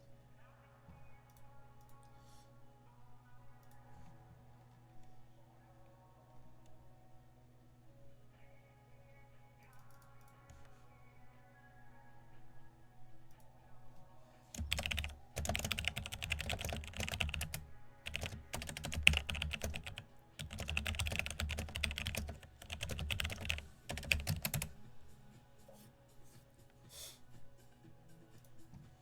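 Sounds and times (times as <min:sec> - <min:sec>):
computer keyboard typing: 0:14.5 - 0:24.8.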